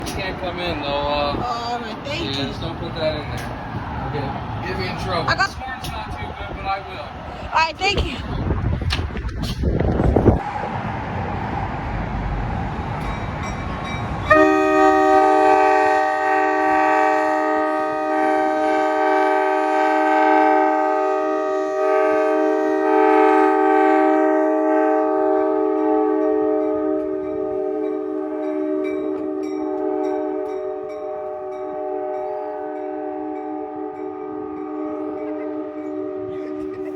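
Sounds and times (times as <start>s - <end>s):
rushing noise: 1.3s - 14.5s
locomotive air horn chord: 14.3s - 36.9s.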